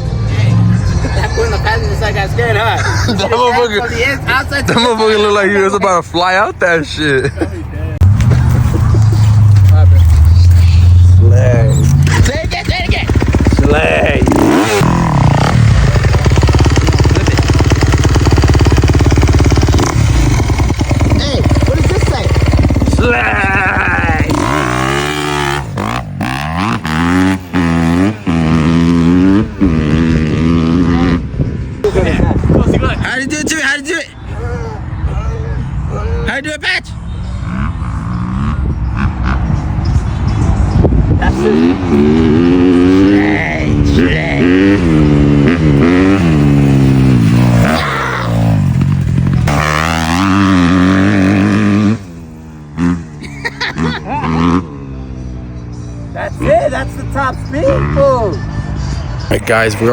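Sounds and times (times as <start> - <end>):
vehicle engine revving in pulses: 8.0 - 31.3, 37.1 - 59.6.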